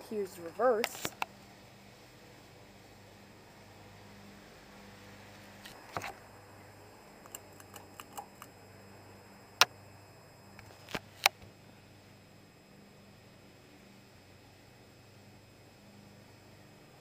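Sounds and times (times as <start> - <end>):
ceiling fan motor hum: 0.0 - 17.0
clicks and ticks: 7.2 - 8.5.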